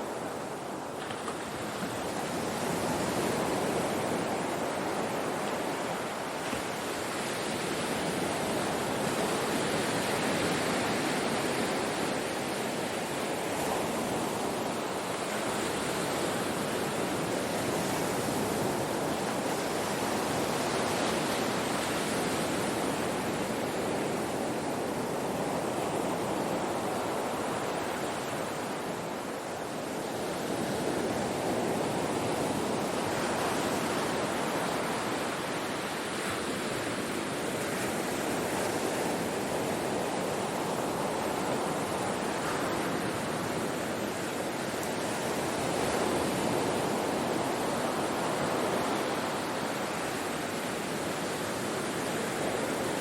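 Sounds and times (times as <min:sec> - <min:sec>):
ocean waves breaking on shore: 0:00.0 - 0:53.0.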